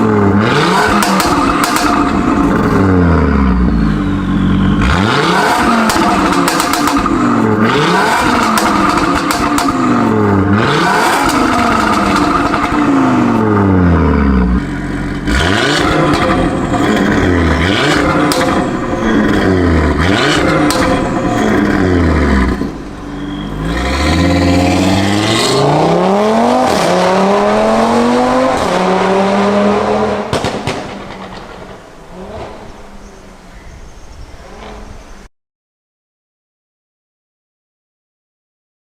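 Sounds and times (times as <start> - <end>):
car engine accelerating hard: 0.0 - 33.2
exhaust pops and crackles: 0.8 - 2.9, 5.8 - 7.4, 8.2 - 10.1, 11.0 - 13.0, 15.1 - 22.8, 30.2 - 32.7.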